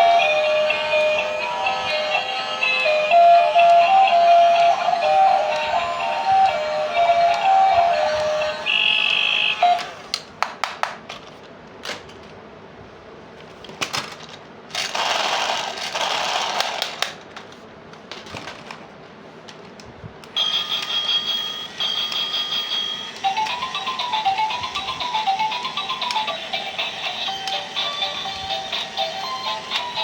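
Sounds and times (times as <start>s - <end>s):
electronic toy beeping and chiming: 0.0s - 10.1s, 20.4s - 30.0s.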